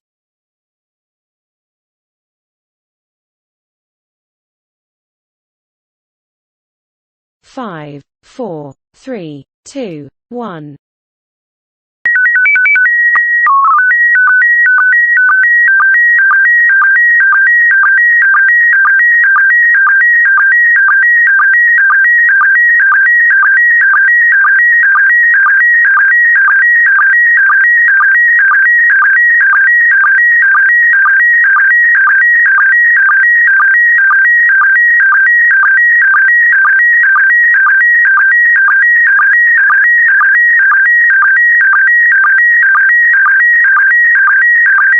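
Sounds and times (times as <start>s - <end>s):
stepped code tones: 12.1s - 44.9s.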